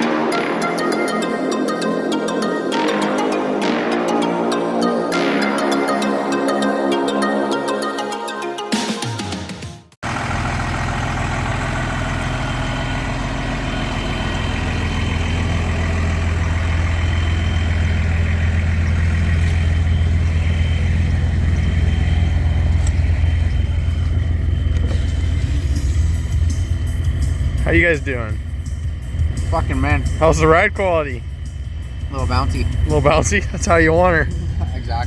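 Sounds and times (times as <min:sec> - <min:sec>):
road noise: 0:10.0 - 0:35.0
truck engine droning: 0:10.0 - 0:35.0.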